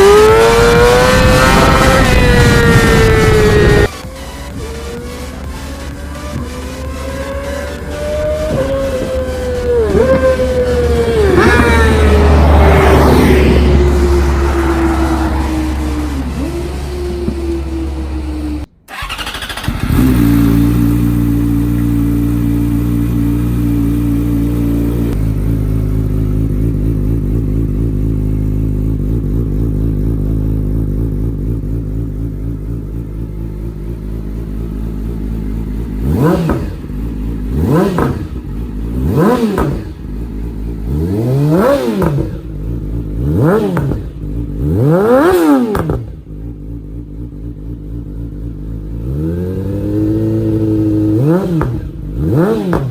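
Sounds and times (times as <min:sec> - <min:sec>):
motorcycle engine idling and revving: 0:00.0 - 0:52.9.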